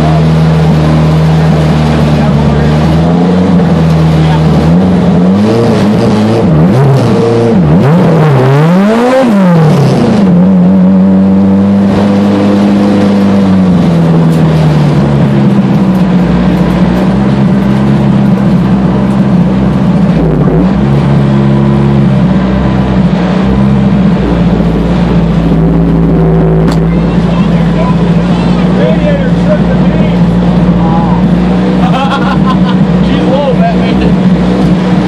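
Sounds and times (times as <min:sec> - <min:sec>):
car engine revving and running: 0:00.0 - 0:35.0.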